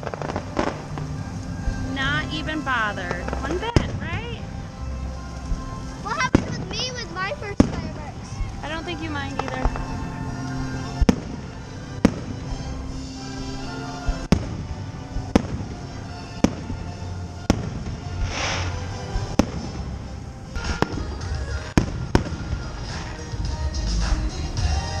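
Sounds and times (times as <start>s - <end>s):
fireworks bangs: 0.0s - 24.3s
music playing: 0.0s - 25.0s
brief hiss: 18.2s - 19.0s.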